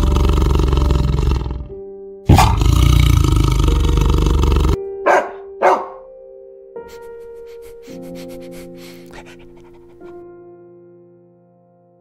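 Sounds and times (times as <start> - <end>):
tiger roaring: 0.0 - 5.2
soft background music: 0.0 - 12.0
dog barking: 2.3 - 2.6, 5.0 - 6.1.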